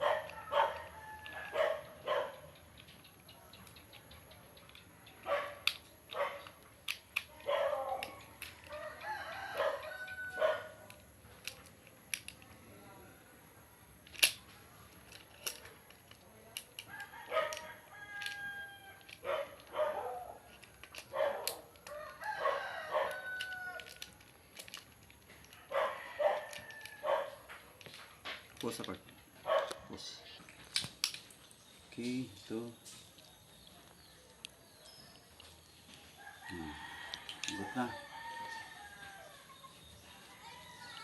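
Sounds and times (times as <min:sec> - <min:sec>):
roosters crowing: 0:00.0 - 0:02.1, 0:07.5 - 0:10.9, 0:16.9 - 0:20.5, 0:21.2 - 0:24.2, 0:25.2 - 0:27.6, 0:36.0 - 0:41.0.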